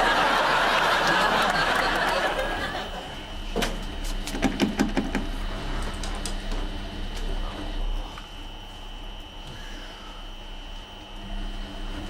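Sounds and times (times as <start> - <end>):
audience laughter: 0.0 - 3.3.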